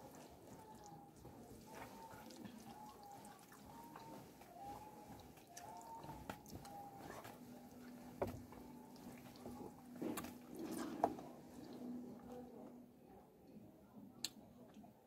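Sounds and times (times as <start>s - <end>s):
wet chewing: 0.0s - 12.6s
faint steady hum: 0.0s - 15.0s.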